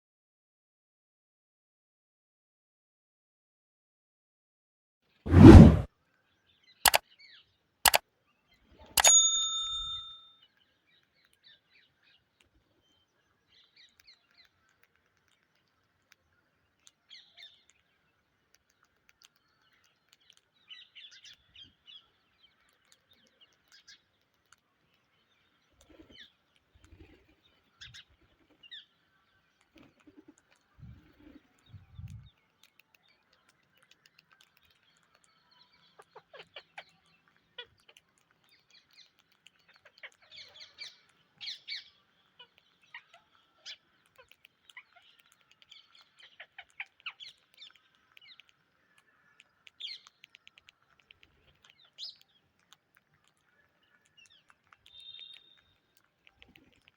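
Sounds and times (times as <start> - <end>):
sharp clicks: 9.0 - 10.0
bell-like ding: 9.0 - 10.3.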